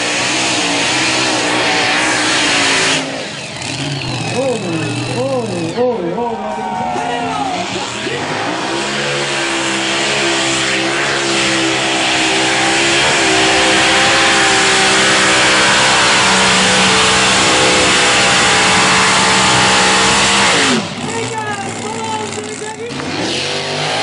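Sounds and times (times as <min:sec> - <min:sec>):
pulling tractor engine at full power: 0:00.0 - 0:24.0.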